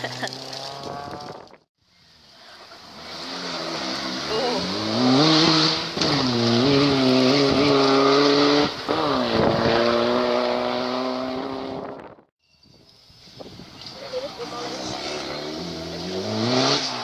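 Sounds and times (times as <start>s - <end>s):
rally car engine at full throttle: 2.2s - 12.2s, 14.4s - 17.0s.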